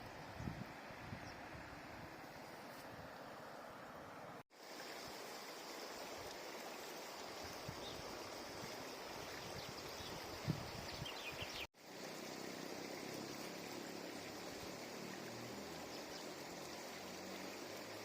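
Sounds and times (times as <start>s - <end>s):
river water rushing: 11.2s - 18.0s.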